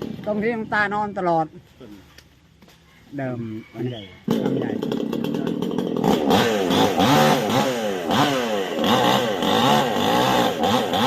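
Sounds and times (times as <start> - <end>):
chainsaw engine revving: 4.2 - 11.0.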